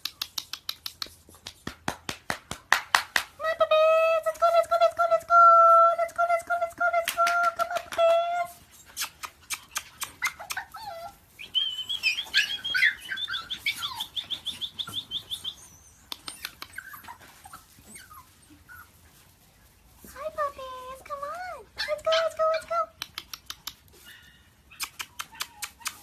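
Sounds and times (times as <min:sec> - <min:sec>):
dog whining: 0:09.7 - 0:19.0, 0:24.0 - 0:26.0
sharp clicks: 0:23.0 - 0:23.8.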